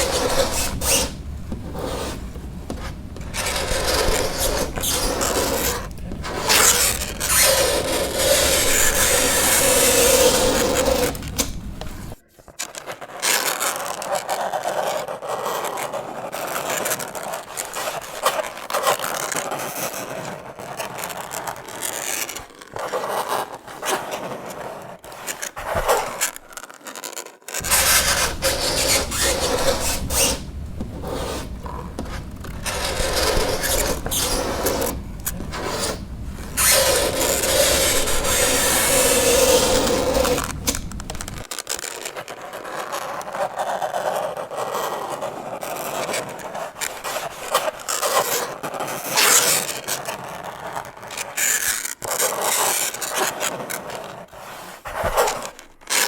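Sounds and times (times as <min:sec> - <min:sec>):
fingernails scraping on chalkboard: 0:00.0 - 0:12.2, 0:27.6 - 0:41.5.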